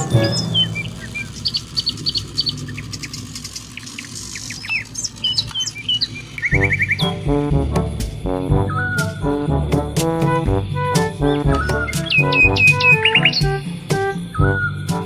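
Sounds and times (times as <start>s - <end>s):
music: 0.0s - 1.2s, 6.5s - 15.0s
bird trill: 0.0s - 7.2s
birds chirping: 0.0s - 14.9s.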